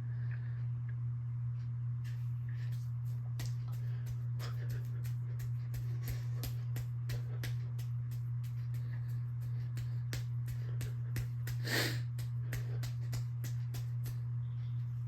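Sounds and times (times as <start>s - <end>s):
ceiling fan motor hum: 0.0s - 15.0s
person sniffing: 11.6s - 12.1s.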